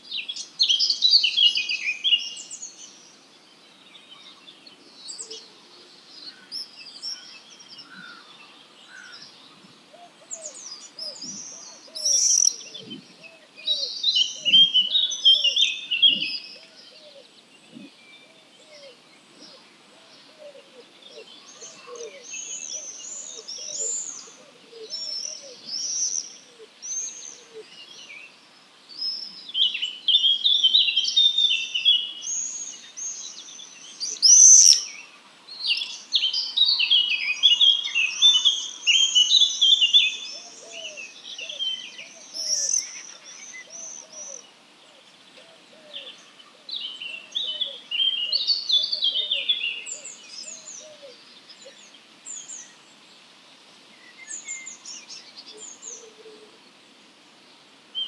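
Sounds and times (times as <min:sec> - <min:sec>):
songbirds chirping and warbling: 0:00.0 - 0:58.0.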